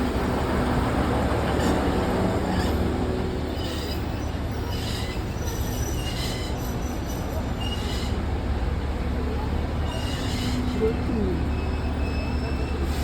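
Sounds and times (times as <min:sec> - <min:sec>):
train low rumble: 0:00.0 - 0:13.0
train wheels squealing: 0:01.6 - 0:08.3, 0:09.8 - 0:13.0.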